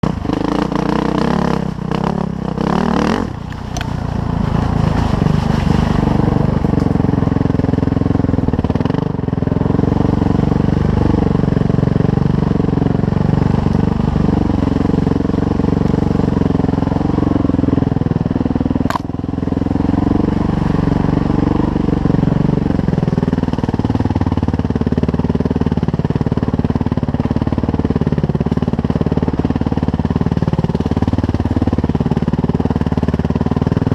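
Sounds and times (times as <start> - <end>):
dirt bike engine revving: 0.0 - 17.8, 18.8 - 22.7
sharp click: 18.9 - 19.1.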